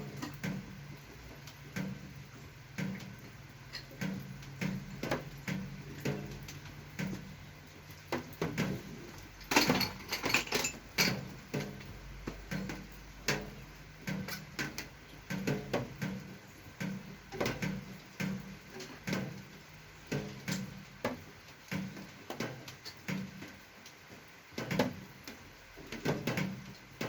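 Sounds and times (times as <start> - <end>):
tools clicking and knocking: 9.4 - 11.6.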